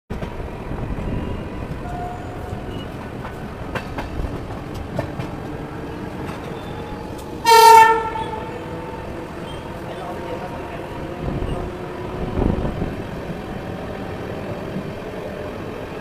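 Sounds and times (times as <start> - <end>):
train rumbling at speed: 0.1 - 16.0
locomotive horn blast: 7.4 - 9.6.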